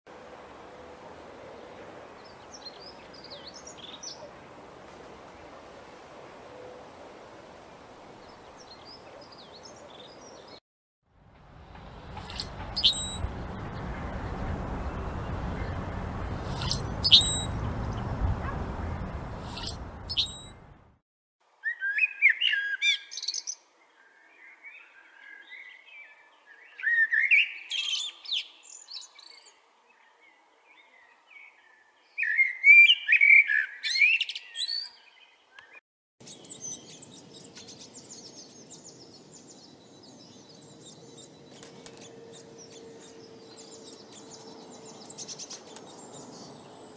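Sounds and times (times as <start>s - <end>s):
birds chirping: 0.7s - 5.6s, 7.7s - 10.6s, 11.8s - 20.8s, 32.2s - 46.9s
bird warbling song: 1.6s - 4.5s, 8.2s - 10.6s, 12.2s - 20.7s, 21.6s - 46.9s
steady rushing noise: 11.2s - 20.9s.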